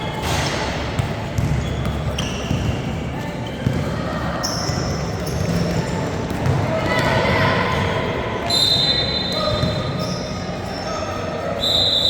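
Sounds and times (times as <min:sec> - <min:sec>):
voices echoing in hall: 0:00.0 - 0:12.0
ball bouncing on hard court: 0:00.2 - 0:03.0, 0:03.6 - 0:04.0, 0:04.7 - 0:07.2
shoes squeaking on floor: 0:01.4 - 0:03.8, 0:04.4 - 0:06.2.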